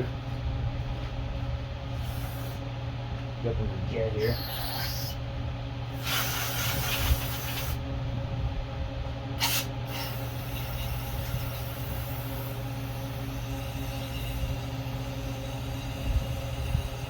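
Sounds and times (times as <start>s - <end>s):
electric fan hum: 0.0s - 17.0s
compressed air hissing in blasts: 2.0s - 2.6s, 5.9s - 7.8s, 9.4s - 12.6s.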